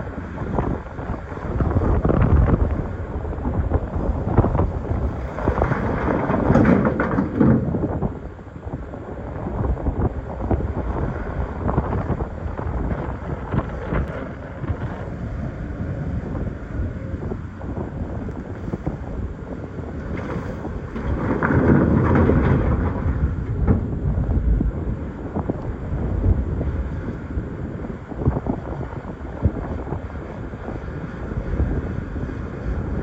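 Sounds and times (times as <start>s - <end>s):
diesel engine under load: 0.0s - 33.0s
rocks scraping against bucket: 4.4s - 8.0s, 20.0s - 23.4s.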